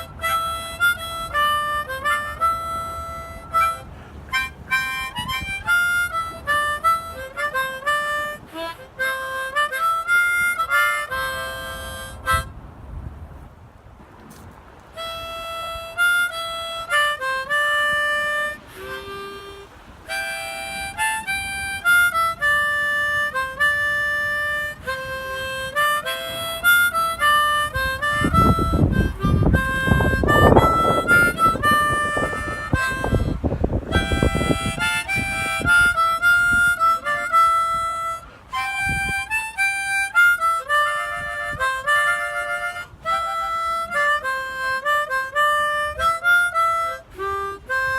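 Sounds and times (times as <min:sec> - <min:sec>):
harmonica melody: 0:00.0 - 0:12.6, 0:14.9 - 0:47.9.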